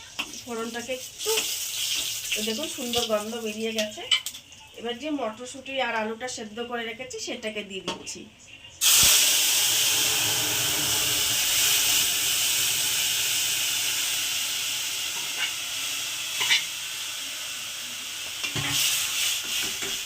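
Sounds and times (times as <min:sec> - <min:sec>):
food sizzling in hot oil: 0:00.0 - 0:04.4, 0:08.8 - 0:20.0.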